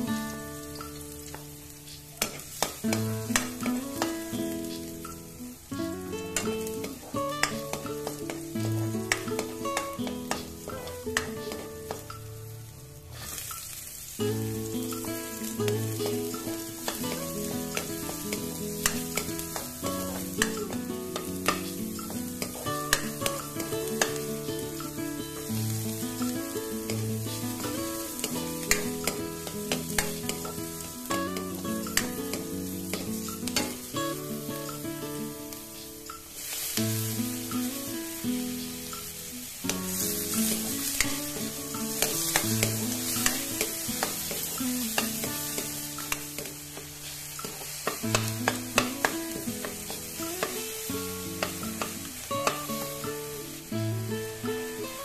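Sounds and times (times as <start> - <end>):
background music melody: 0.0 - 55.0
food sizzling in hot oil: 0.0 - 55.0
spatula scraping a wok: 13.1 - 13.5.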